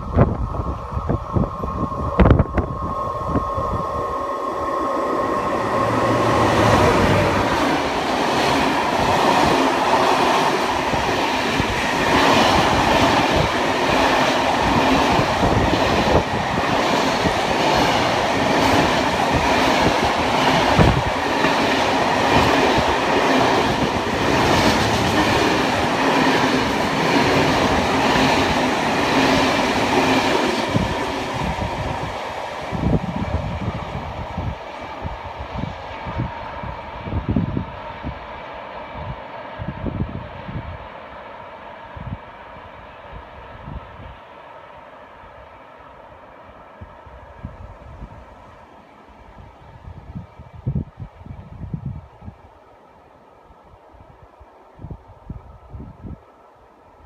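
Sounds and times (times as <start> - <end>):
train wagons rumbling on rails: 0.0 - 38.2.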